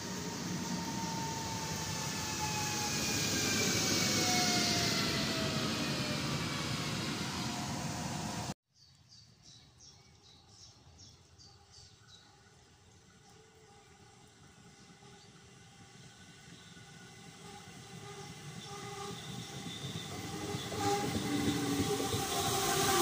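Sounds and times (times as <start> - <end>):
train rushing past with whine: 0.0 - 8.6, 12.3 - 23.0
bird chirping: 8.7 - 13.8.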